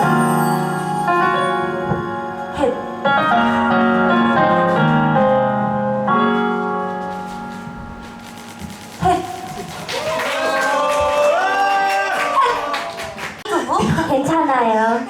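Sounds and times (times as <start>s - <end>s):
piano playing sustained chords: 0.0s - 9.0s.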